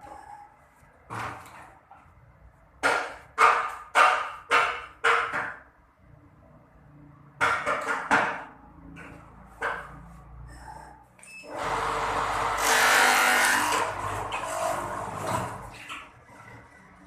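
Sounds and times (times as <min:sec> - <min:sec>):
machine rasping: 0:11.5 - 0:15.8.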